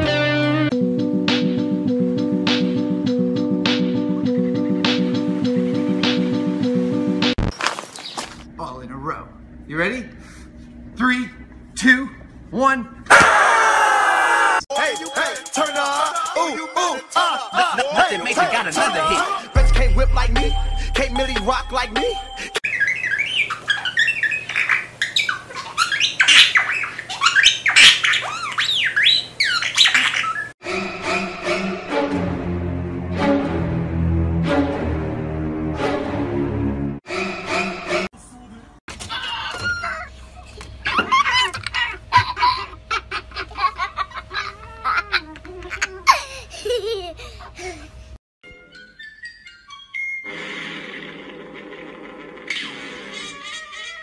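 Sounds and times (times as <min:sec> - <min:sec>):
budgerigar chattering: 0:22.7 - 0:30.5
cockatoo laughing: 0:39.1 - 0:48.0, 0:52.5 - 0:54.0.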